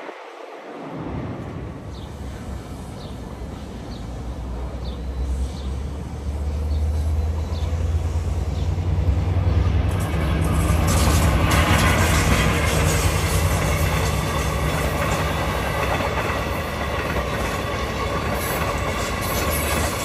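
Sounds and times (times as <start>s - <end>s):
locomotive drone: 0.0s - 20.0s
wheels clattering on rails: 8.5s - 20.0s.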